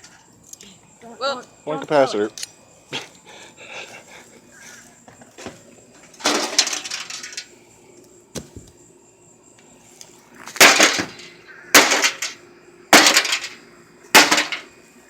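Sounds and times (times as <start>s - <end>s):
metal and glass crashing: 6.2s - 7.4s, 10.6s - 12.4s, 13.0s - 13.6s, 14.2s - 14.7s.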